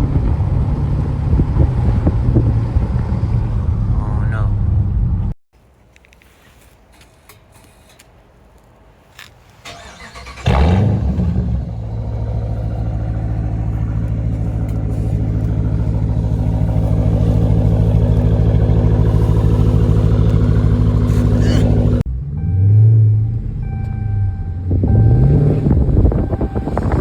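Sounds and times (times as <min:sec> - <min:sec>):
car engine starting and idling: 0:09.0 - 0:27.0.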